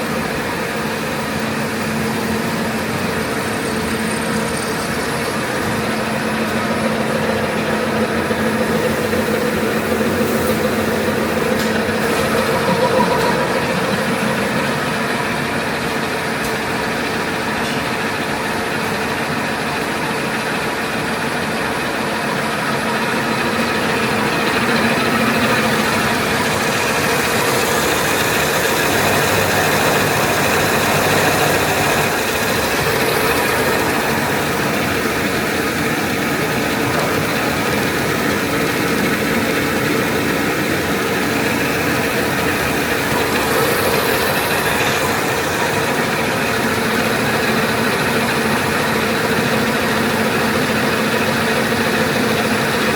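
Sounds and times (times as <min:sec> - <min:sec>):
machine whirring: 0:00.0 - 0:52.9.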